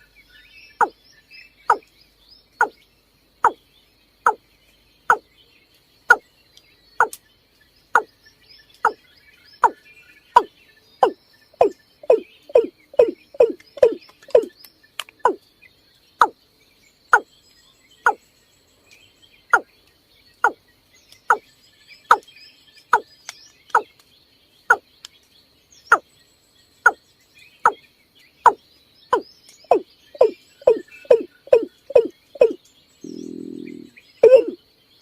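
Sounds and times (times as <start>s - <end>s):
bird calling short low notes: 29.7s - 34.6s.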